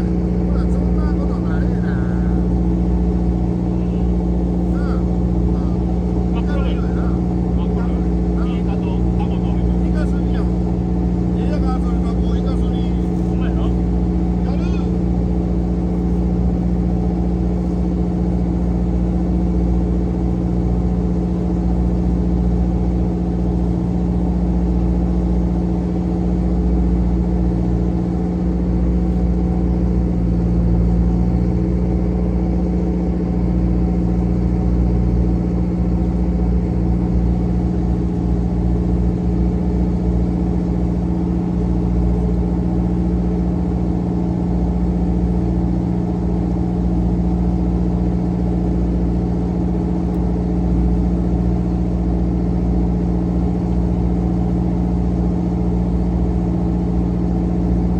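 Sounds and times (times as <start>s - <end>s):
boat engine humming steadily: 0.0s - 57.9s.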